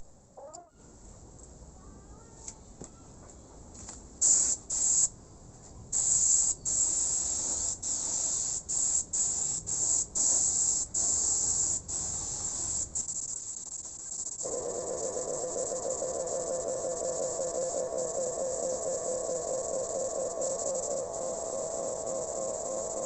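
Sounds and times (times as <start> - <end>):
spray paint hissing: 4.2 - 5.1, 5.9 - 23.0.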